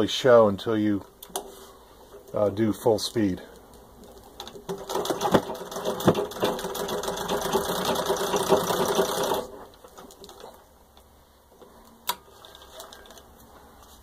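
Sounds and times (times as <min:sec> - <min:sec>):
sewing machine clattering: 0:04.0 - 0:10.6.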